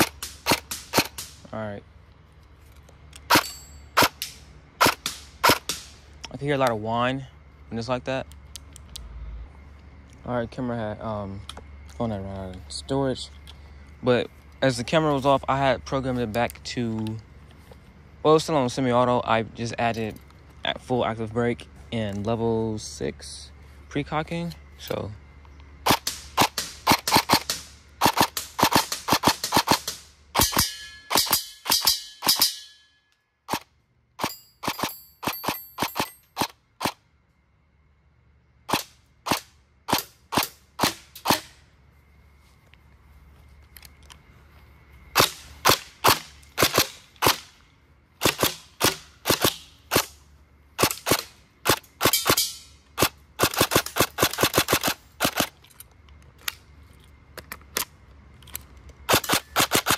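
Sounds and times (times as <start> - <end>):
short ringing: 30.4 - 33.2.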